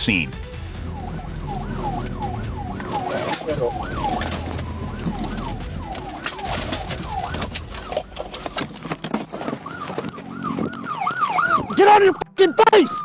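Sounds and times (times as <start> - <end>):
police siren yelping: 0.4 - 13.0
knocks and clatter: 2.0 - 10.4.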